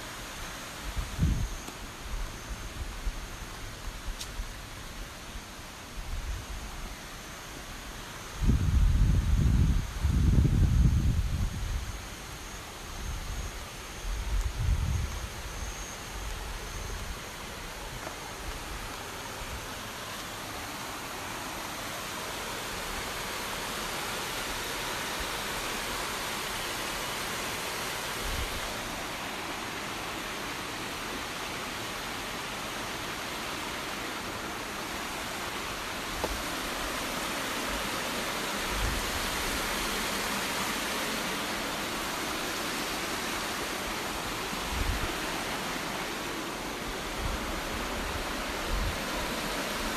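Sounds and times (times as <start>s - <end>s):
waterfall rushing: 16.6s - 49.9s.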